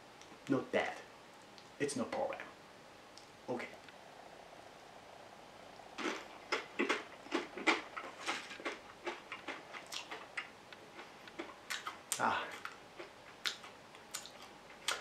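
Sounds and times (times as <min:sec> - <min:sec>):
tortilla chips being chewed: 0:05.9 - 0:15.0.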